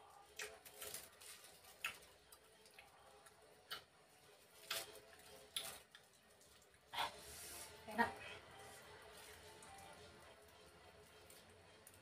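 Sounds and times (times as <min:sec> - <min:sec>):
mouth clicks and smacks chewing: 0:00.3 - 0:01.0, 0:01.6 - 0:03.9, 0:04.6 - 0:06.9.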